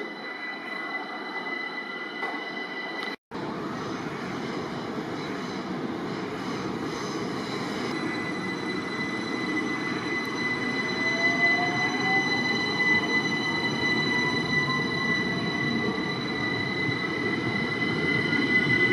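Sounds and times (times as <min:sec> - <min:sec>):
high wheel squeal: 0:06.6 - 0:18.9.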